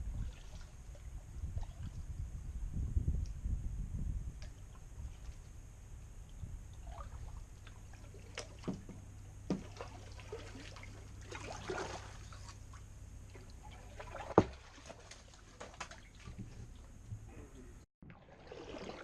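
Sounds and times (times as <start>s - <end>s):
kayak paddle splashing: 0.1s - 2.0s, 6.8s - 17.0s, 18.0s - 19.0s.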